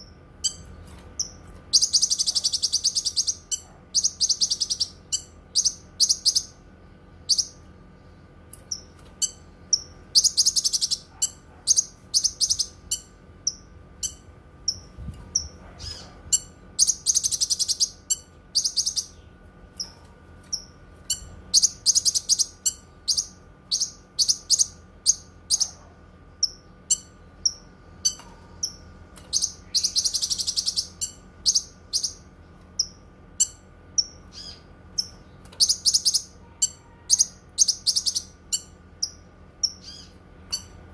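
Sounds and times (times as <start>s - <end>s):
bird chirping and trilling: 0.0s - 6.6s, 7.2s - 7.7s, 8.6s - 40.8s.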